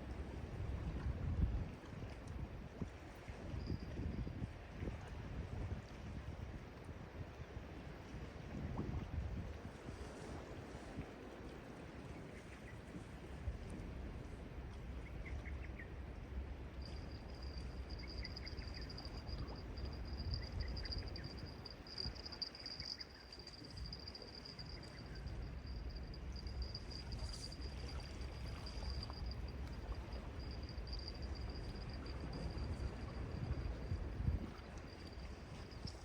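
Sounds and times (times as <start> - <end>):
wind: 0.0 - 36.0
sea waves: 15.7 - 36.0.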